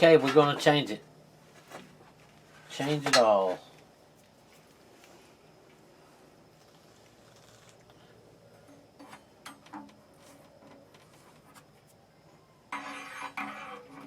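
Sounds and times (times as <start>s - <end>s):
rustling scraping handling noise: 12.7s - 14.0s.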